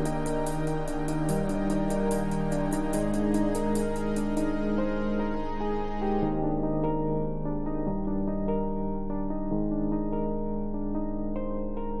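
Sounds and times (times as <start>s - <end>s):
light high ticking beat: 0.0s - 4.6s
soft sustained keyboard notes: 0.0s - 12.0s.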